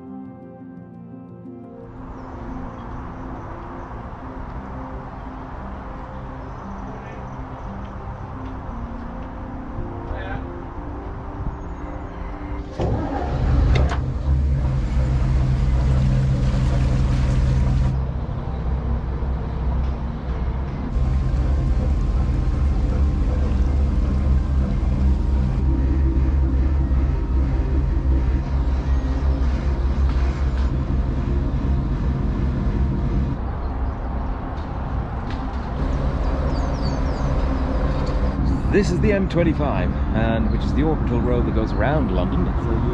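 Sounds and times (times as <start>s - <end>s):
boat engine running: 12.6s - 18.0s, 20.9s - 33.4s, 35.8s - 42.9s
rushing noise: 12.6s - 42.9s.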